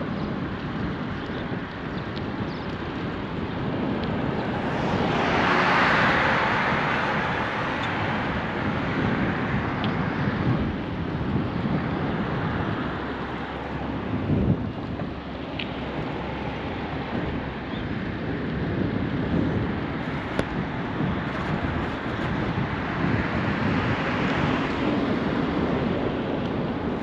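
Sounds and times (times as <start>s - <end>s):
bicycle tyre and road noise: 0.0s - 27.0s
wind rushing over microphone: 0.0s - 27.0s.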